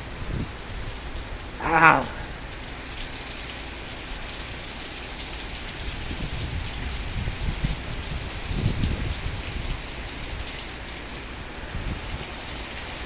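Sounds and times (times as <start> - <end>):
heavy rain pouring: 0.1 - 13.0.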